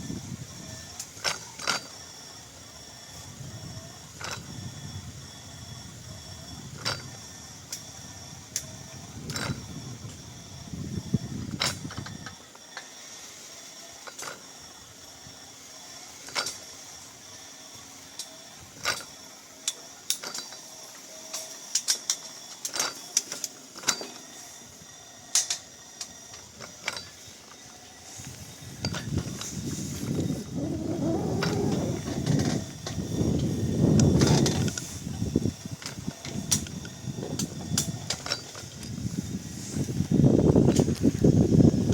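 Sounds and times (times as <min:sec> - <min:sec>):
low rumble: 0:30.1 - 0:33.2.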